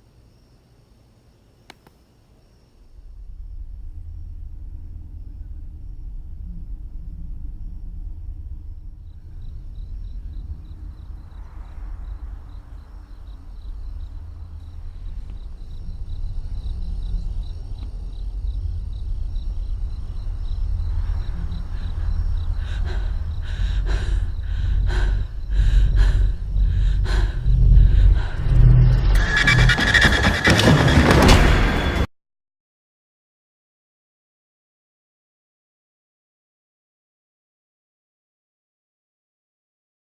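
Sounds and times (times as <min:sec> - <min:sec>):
faint insect chirps: 0:00.0 - 0:29.7
low rumbling drone: 0:02.8 - 0:32.1
heavy sharp hits: 0:27.4 - 0:32.1.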